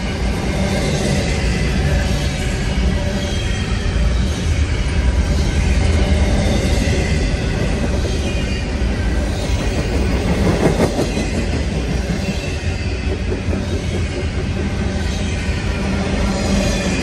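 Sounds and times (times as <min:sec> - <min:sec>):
train wheels rumbling on rail: 0:00.0 - 0:17.0
train knock: 0:09.3 - 0:15.6.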